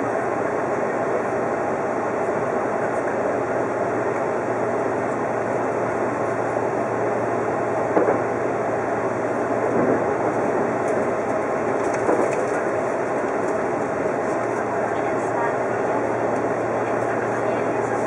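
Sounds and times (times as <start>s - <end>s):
train wheels rumbling on rail: 7.8s - 8.4s, 9.3s - 18.0s.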